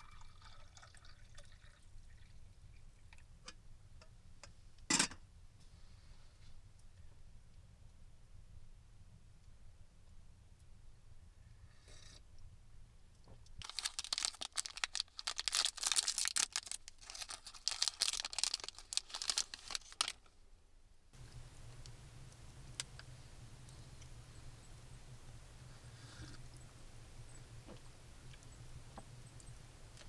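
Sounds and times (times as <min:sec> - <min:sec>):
material rustling and crinkling: 0:13.6 - 0:20.3.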